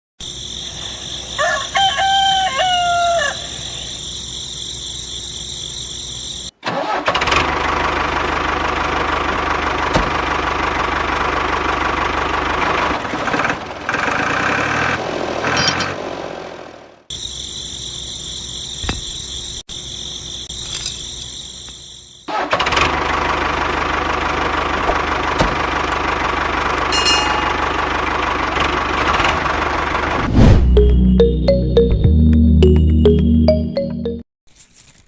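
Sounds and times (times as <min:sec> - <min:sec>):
crickets chirping: 0:00.2 - 0:06.6, 0:17.1 - 0:22.3
rooster crowing: 0:01.3 - 0:03.7.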